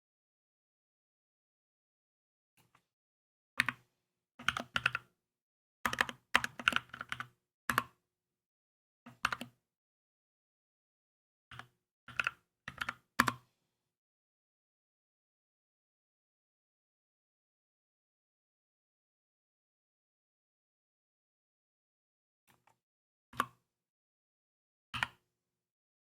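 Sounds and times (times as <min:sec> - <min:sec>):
mechanical keyboard typing: 0:05.9 - 0:07.9.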